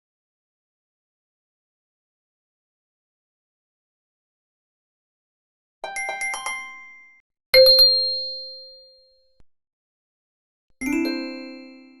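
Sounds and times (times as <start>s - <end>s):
bell-like chimes: 5.9s - 9.1s, 10.8s - 12.0s.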